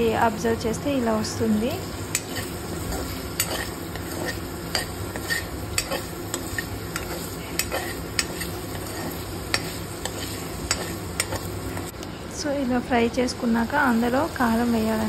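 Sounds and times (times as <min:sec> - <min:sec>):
prawns sizzling in oil: 0:00.0 - 0:12.0, 0:12.7 - 0:15.0
spoon clicking and scraping pan: 0:02.1 - 0:11.9.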